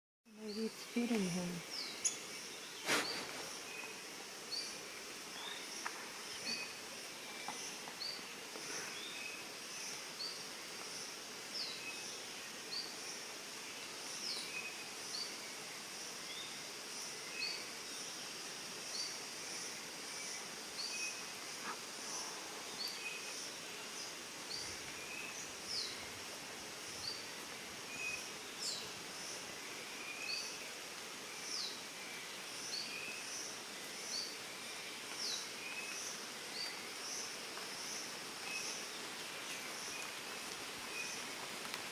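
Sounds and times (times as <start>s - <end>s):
bird chirping: 0.4s - 4.8s.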